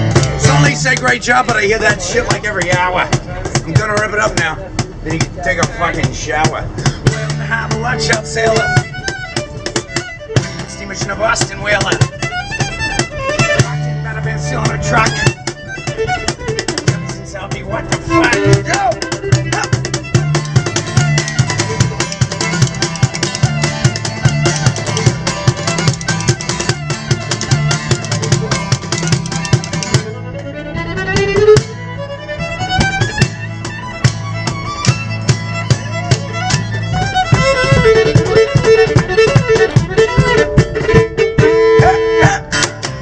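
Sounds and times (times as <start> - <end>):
drums: 0.0 - 43.0
fiddle playing: 0.0 - 43.0
strummed guitar: 0.0 - 43.0.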